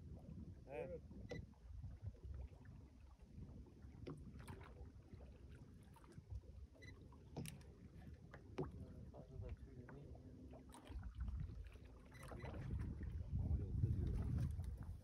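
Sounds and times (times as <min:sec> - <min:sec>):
faint wind and water rumble: 0:00.0 - 0:15.0.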